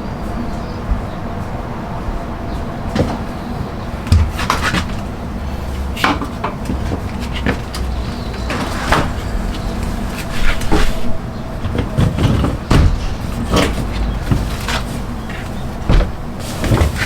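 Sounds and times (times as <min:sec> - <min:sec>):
steady low hum: 0:04.8 - 0:17.0
utensils knocking and clattering: 0:06.0 - 0:17.0.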